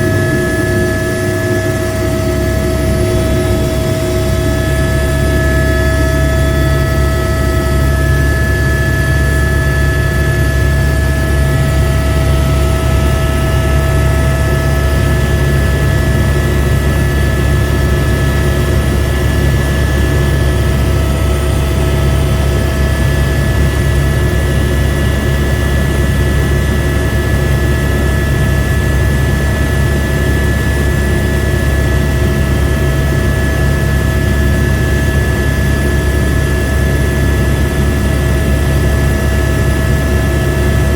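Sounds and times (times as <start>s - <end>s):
high whines: 0.0s - 16.5s
helicopter engine and rotors rumbling: 0.0s - 40.9s.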